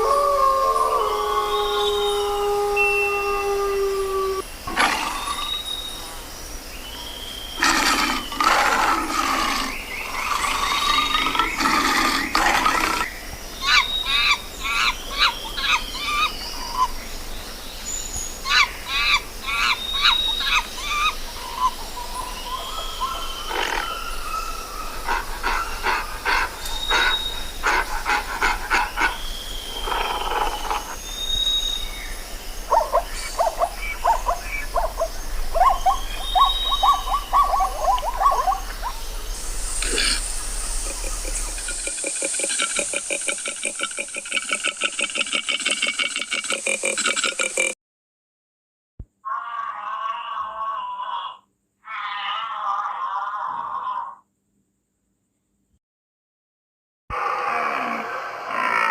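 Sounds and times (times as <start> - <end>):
rising and falling whistled notes: 1.6 - 4.4
short high-pitched animal calls: 49.2 - 54.2.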